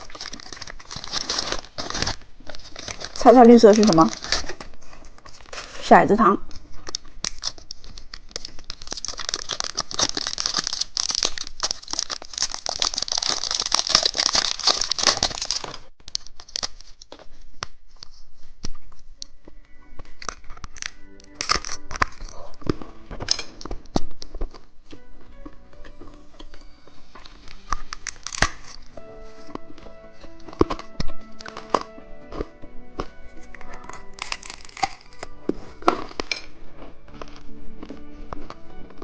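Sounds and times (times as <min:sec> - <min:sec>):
plastic wrapper crinkling: 0:00.0 - 0:19.3, 0:20.0 - 0:39.0
soft background music: 0:00.1 - 0:07.4, 0:18.2 - 0:39.0.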